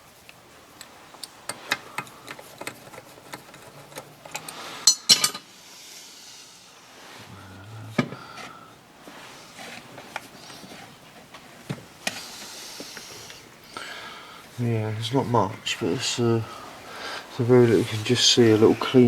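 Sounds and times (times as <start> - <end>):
metal tools clicking and tapping: 0.8 - 5.5.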